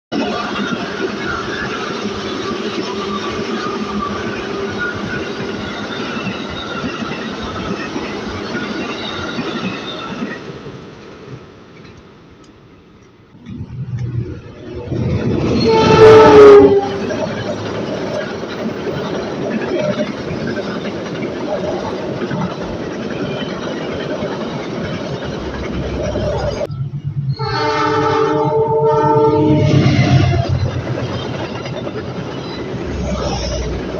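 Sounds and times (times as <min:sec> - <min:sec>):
train wheels rumbling on rails: 0:00.1 - 0:33.9
high steady wheel squeal: 0:00.2 - 0:11.0, 0:14.5 - 0:33.9
train chord horn blast: 0:15.6 - 0:17.1, 0:27.4 - 0:30.4.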